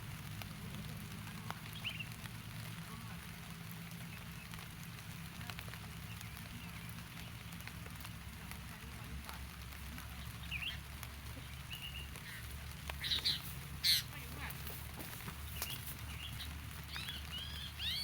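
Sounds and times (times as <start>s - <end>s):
rain falling: 0.0s - 18.0s
bird chirps: 11.4s - 14.1s, 15.5s - 18.0s.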